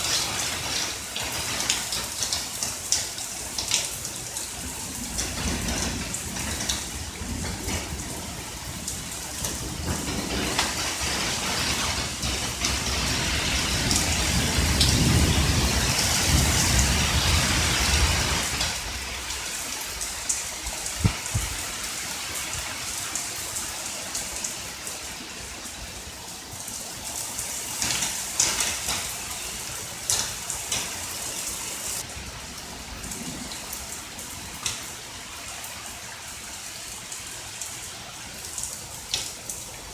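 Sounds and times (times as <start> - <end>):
steady rain: 0.0 - 39.9
rolling thunder: 4.4 - 22.0, 32.0 - 35.5.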